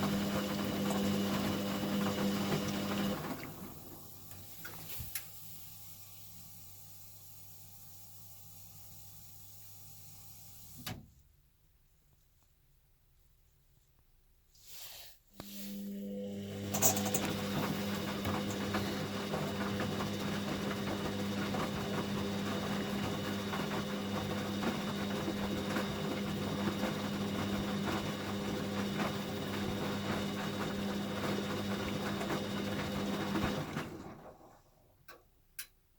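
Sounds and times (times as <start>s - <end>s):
washing machine motor hum: 0.0s - 10.8s, 15.4s - 34.9s
washing machine rattle: 16.7s - 34.4s.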